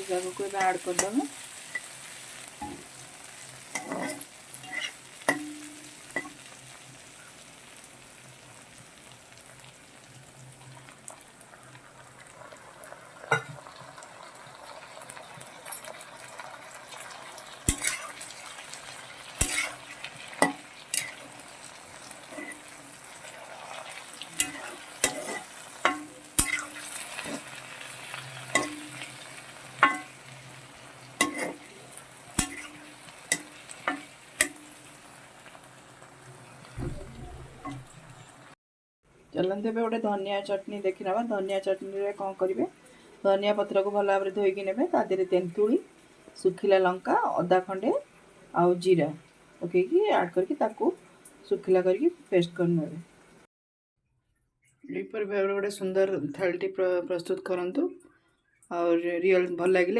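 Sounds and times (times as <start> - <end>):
vegetables sizzling in oil: 0.0 - 38.6, 39.3 - 53.5
utensil scraping and knocking pan: 3.8 - 6.4, 19.4 - 19.8, 22.3 - 22.7, 24.4 - 27.5, 28.5 - 29.1, 29.8 - 30.2, 31.2 - 31.7, 32.4 - 34.7.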